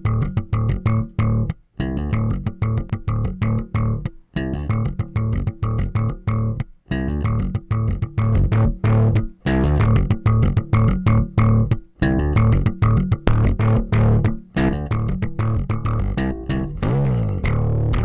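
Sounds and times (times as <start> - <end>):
plucked bass guitar line: 0.0 - 18.0.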